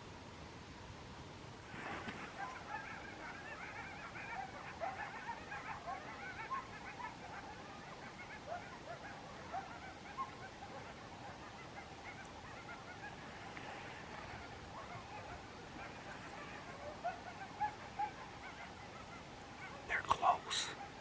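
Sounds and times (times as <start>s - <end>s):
flock of birds calling: 1.7s - 21.0s.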